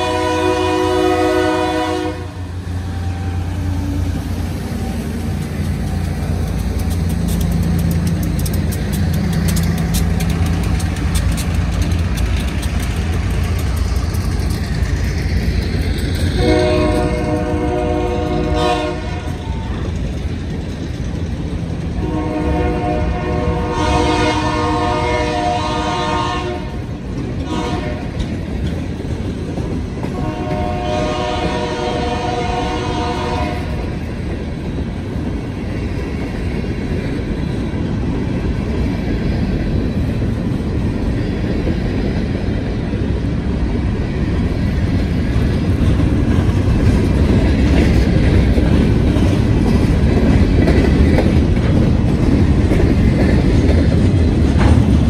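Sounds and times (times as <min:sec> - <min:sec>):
train air horn blasts: 0:00.0 - 0:03.7, 0:16.4 - 0:19.8, 0:22.0 - 0:26.8, 0:27.4 - 0:28.2, 0:30.1 - 0:33.8
freight cars rolling on rails: 0:00.0 - 0:55.0
locomotive engine rumbling: 0:00.0 - 0:55.0.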